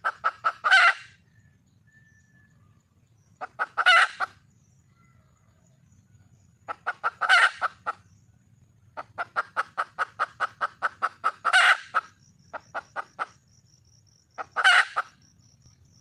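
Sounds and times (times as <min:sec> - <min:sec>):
hen clucking and squawking: 0:00.0 - 0:01.2, 0:03.4 - 0:04.4, 0:06.7 - 0:08.1, 0:09.0 - 0:13.4, 0:14.4 - 0:15.2.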